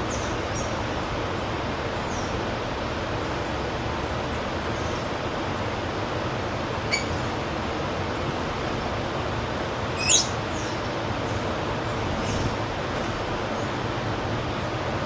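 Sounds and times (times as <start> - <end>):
traffic noise: 0.0 - 15.0
faint high bird chirps: 6.9 - 7.2, 10.0 - 10.8.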